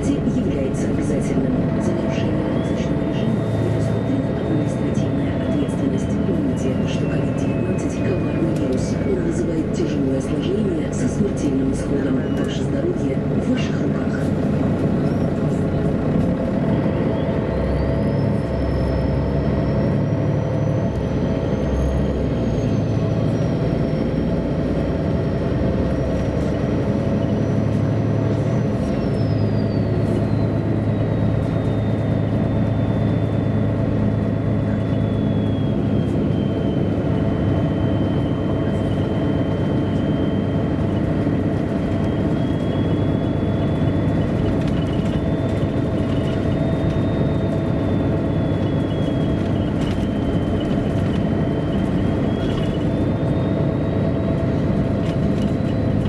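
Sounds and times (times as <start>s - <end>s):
bus diesel engine rumble: 0.0s - 56.0s
drivetrain high whine: 25.4s - 56.0s.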